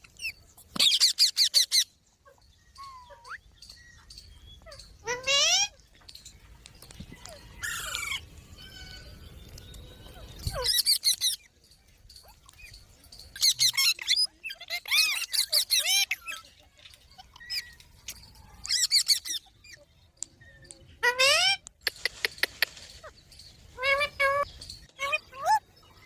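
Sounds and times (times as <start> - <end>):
parrots screeching: 4.6 - 5.8, 7.3 - 9.2, 10.4 - 11.5, 13.4 - 16.5, 21.0 - 21.6, 23.8 - 25.6.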